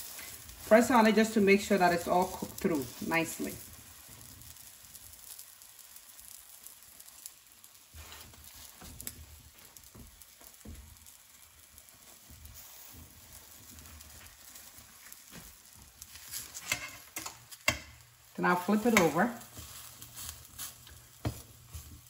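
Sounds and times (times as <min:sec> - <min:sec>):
omelette sizzling in skillet: 0:00.0 - 0:22.0
spatula tapping and scraping pan: 0:08.1 - 0:11.2, 0:15.3 - 0:18.0, 0:18.7 - 0:22.0.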